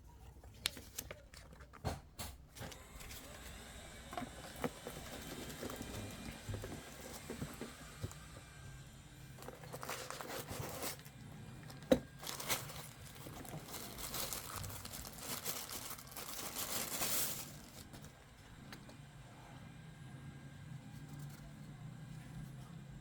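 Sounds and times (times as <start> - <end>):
plastic packaging crinkling: 2.8 - 8.4, 9.3 - 18.2.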